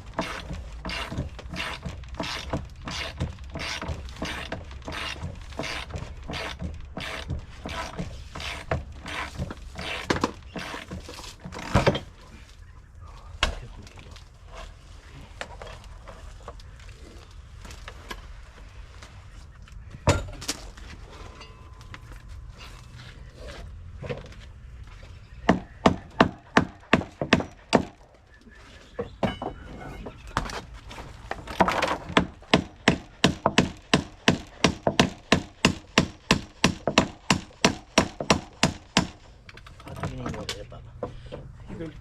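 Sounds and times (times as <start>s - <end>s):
hammer striking wood: 25.4s - 28.0s, 31.5s - 39.2s.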